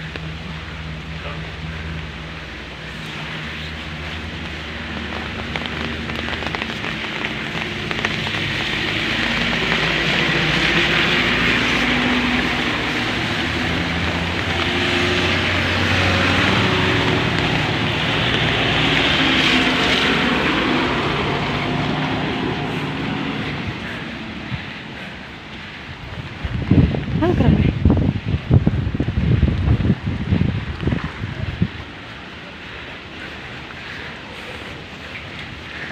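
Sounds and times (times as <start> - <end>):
vehicle engine running: 0.0 - 26.1
heavy rain hissing: 0.0 - 35.9.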